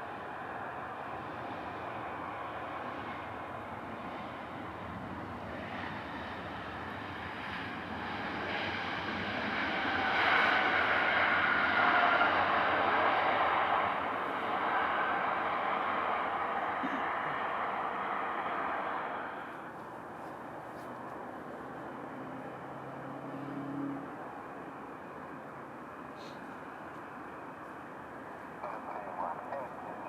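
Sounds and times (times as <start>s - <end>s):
jet airliner passing: 0.0s - 30.0s
jet engine high whine: 0.0s - 30.0s.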